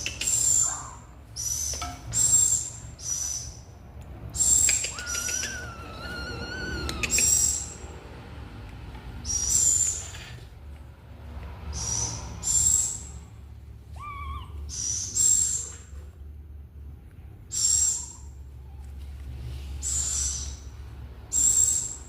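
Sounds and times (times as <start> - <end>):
songbird wavering whistle: 4.7 - 7.8.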